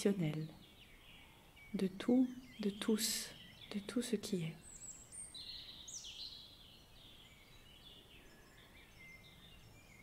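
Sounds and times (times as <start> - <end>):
faint birdsong: 0.0 - 10.0.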